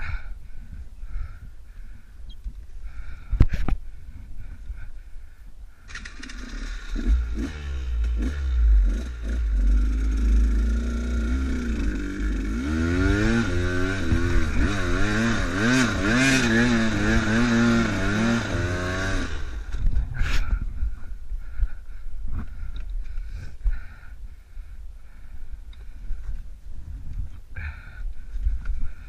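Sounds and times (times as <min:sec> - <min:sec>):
motorcycle engine revving: 0:05.9 - 0:20.5.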